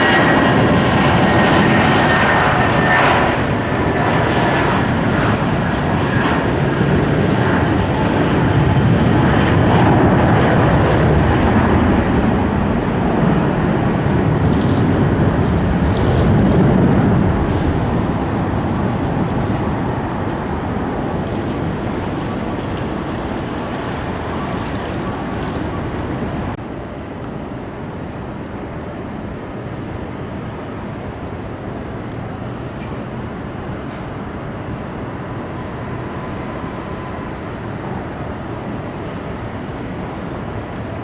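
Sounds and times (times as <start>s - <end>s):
jet engines roaring: 0.0s - 26.8s, 29.2s - 41.0s.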